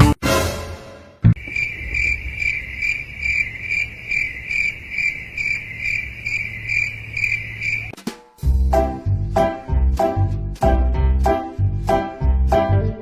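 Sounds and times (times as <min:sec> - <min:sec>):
cricket chirping: 0:01.4 - 0:08.0.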